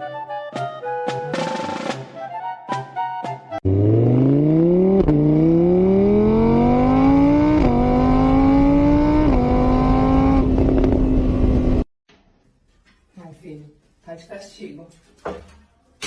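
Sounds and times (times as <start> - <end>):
vehicle engine accelerating: 3.6 - 11.9.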